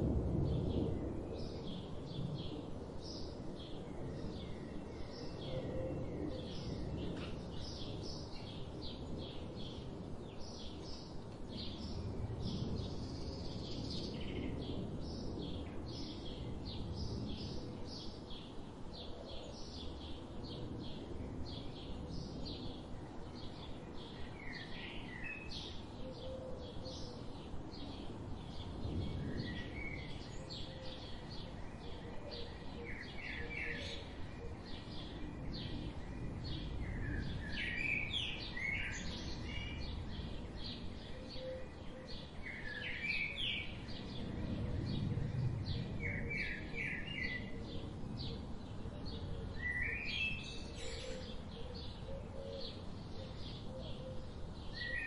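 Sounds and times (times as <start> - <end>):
low background noise: 0.0 - 55.0
songbirds chirping and trilling: 0.0 - 55.0.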